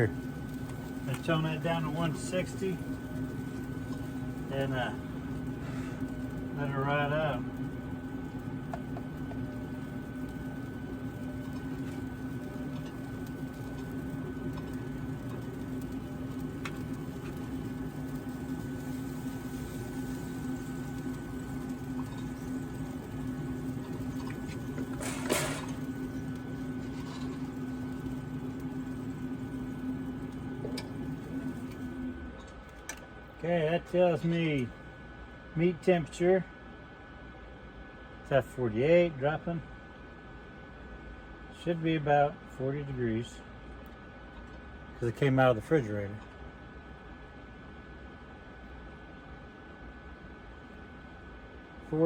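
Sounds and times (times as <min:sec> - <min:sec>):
smoker humming: 0:00.0 - 0:36.4.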